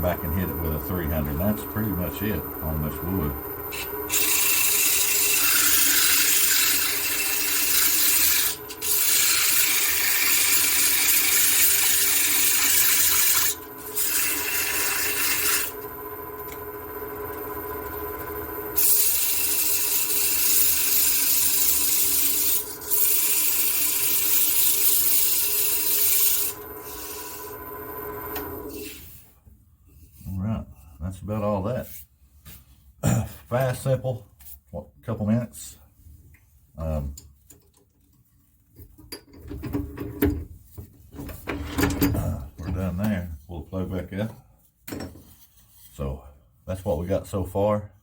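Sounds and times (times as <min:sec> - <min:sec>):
lathe motor humming: 0:00.0 - 0:29.0
sandpaper hissing on spinning wood: 0:04.1 - 0:15.7, 0:18.8 - 0:27.4.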